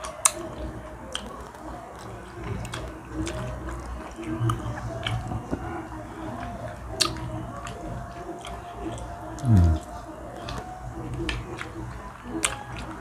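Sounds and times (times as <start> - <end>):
people chewing: 0.0 - 13.0
low vocal sound sliding down: 9.4 - 9.8
mouth clicks and smacks: 9.4 - 9.9.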